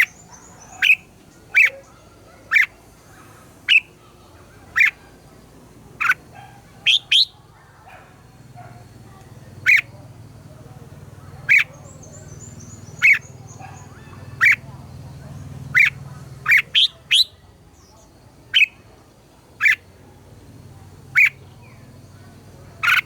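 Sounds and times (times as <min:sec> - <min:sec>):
faint high bird trill: 0:00.0 - 0:10.0, 0:11.2 - 0:19.0, 0:21.1 - 0:23.0
bird giving sharp calls: 0:00.0 - 0:23.0.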